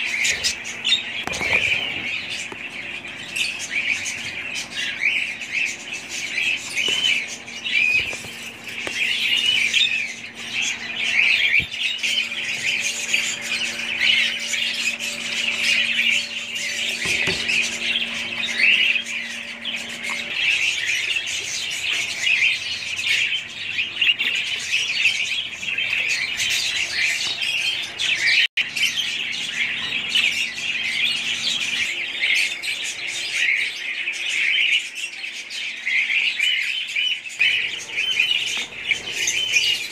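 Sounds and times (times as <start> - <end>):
flock of budgerigars chattering: 0.0 - 39.9.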